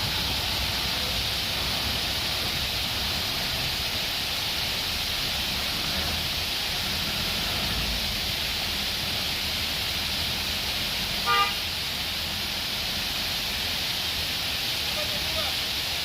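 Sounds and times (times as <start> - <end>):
rushing water hiss: 0.0 - 16.0
vehicle horn toot: 11.2 - 11.6.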